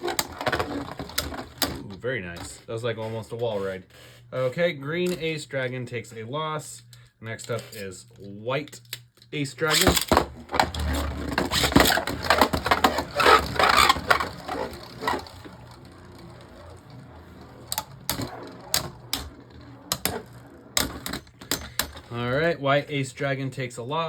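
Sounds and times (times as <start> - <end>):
spinning tops clattering in plastic: 9.7 - 22.4.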